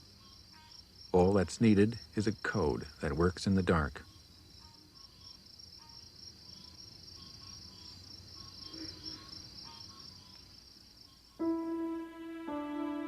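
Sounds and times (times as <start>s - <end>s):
crickets trilling: 0.0s - 13.0s
fainter broken insect calls: 0.0s - 13.0s
string music: 11.4s - 13.0s.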